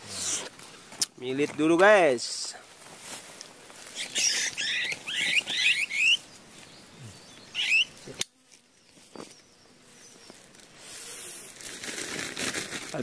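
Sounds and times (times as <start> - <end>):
bird rising chirps: 3.9 - 11.5.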